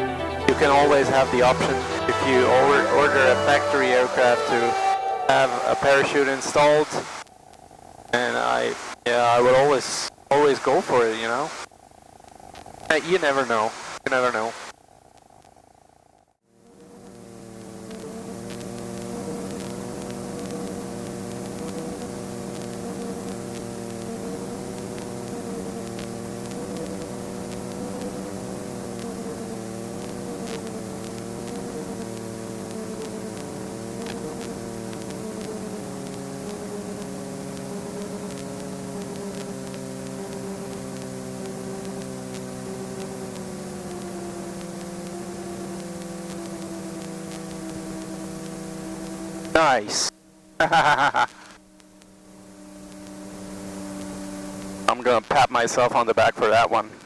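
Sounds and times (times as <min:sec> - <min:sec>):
aircraft engine droning: 0:00.0 - 0:08.4, 0:16.5 - 0:57.0
faint clicks: 0:15.1 - 0:15.6, 0:17.8 - 0:28.2, 0:29.9 - 0:49.5, 0:52.8 - 0:53.1.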